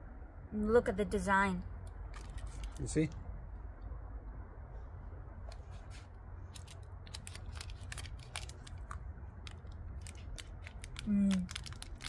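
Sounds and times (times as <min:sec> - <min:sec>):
chocolate bar crunching: 0:06.6 - 0:12.0.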